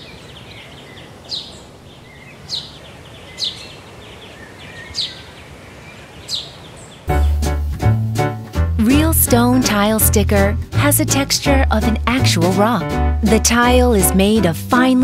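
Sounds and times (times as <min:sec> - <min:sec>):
steady background hiss: 0:00.0 - 0:07.1
faint bird twittering: 0:00.0 - 0:07.3.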